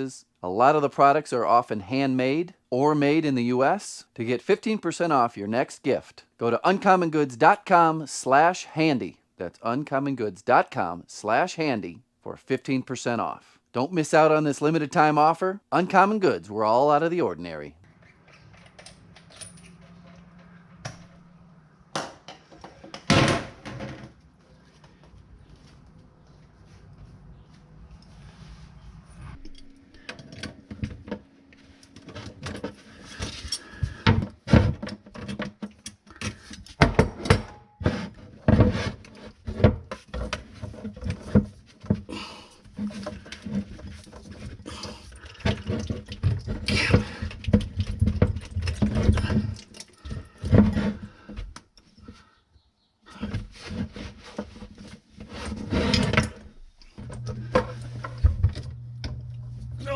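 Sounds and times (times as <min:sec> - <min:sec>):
low hum: 0:17.8 - 0:22.8, 0:23.4 - 0:33.2, 0:56.9 - 0:59.9
objects knocking and clinking in cabinet: 0:21.9 - 0:24.2, 0:32.0 - 0:51.5.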